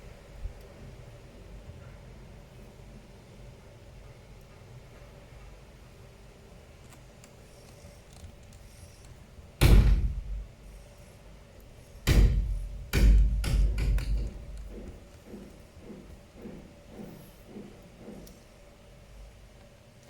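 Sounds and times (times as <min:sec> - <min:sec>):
hard objects thumping on surface: 0:12.1 - 0:18.2.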